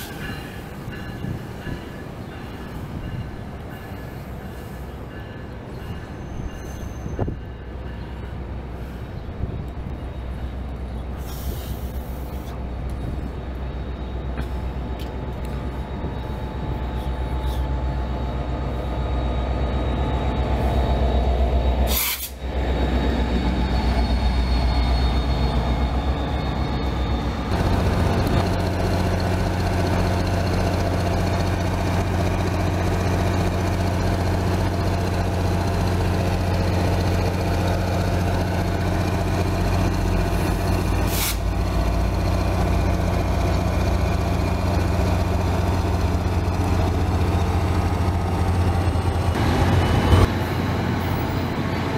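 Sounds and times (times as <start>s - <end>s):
locomotive drone: 0.0s - 51.9s
train rail noise: 0.0s - 51.9s.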